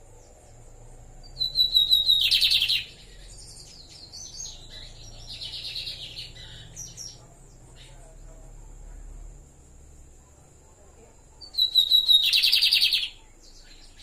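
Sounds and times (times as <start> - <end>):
bird buzzy trill: 1.2 - 7.2, 11.4 - 14.0
bird twittering: 1.2 - 8.4, 11.2 - 14.0
bird whistled notes: 1.3 - 7.2, 11.5 - 14.0.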